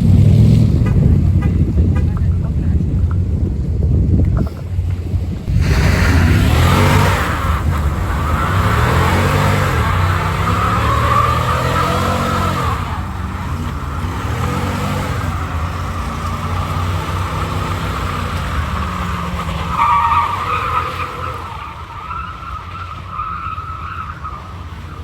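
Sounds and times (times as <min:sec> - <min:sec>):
truck engine revving: 0:00.0 - 0:25.0
tires squealing: 0:05.5 - 0:25.0.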